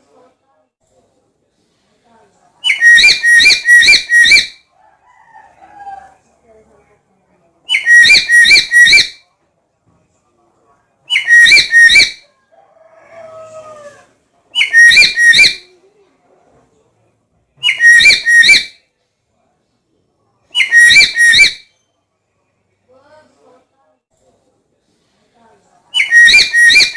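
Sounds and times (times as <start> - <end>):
fainter lower bird call: 2.6 - 4.6, 7.7 - 9.2, 11.1 - 12.2, 14.6 - 15.6, 17.6 - 18.7, 20.6 - 21.8, 26.0 - 26.9
parrot shrill call: 2.6 - 4.6, 7.7 - 9.2, 11.1 - 12.2, 14.6 - 15.7, 17.6 - 18.8, 20.6 - 21.8, 26.0 - 26.9.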